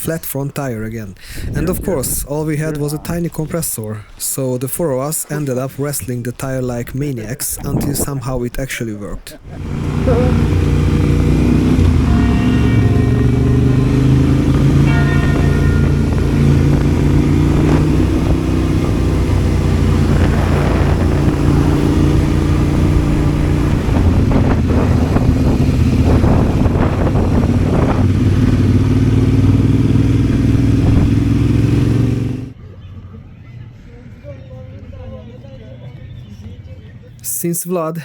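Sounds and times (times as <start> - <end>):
motorcycle engine running: 9.4 - 32.6.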